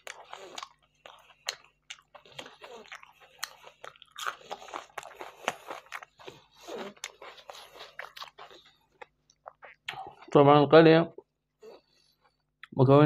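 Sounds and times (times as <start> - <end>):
chewing and crunching food: 0.0 - 10.4.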